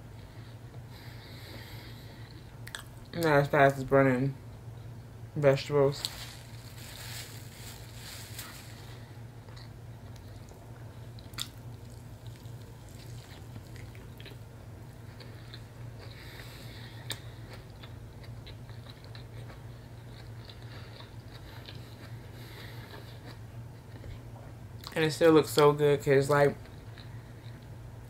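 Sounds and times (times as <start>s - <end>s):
steady low hum: 0.0s - 28.0s
person chewing wetly: 2.6s - 3.0s, 9.5s - 24.2s.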